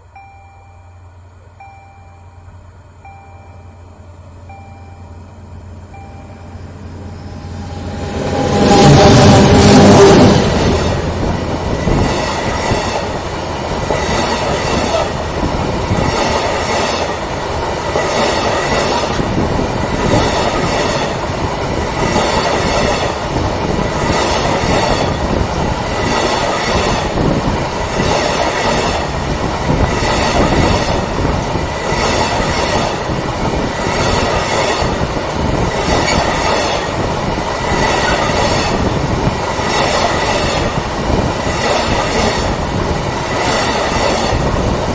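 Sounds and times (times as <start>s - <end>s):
train wheels clicking over joints: 5.2s - 44.9s.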